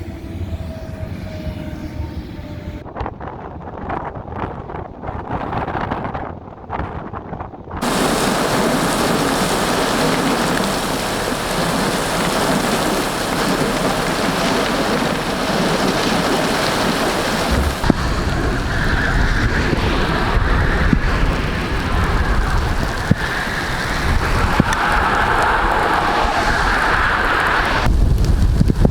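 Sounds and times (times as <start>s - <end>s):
heavy rain pouring: 7.8s - 28.9s.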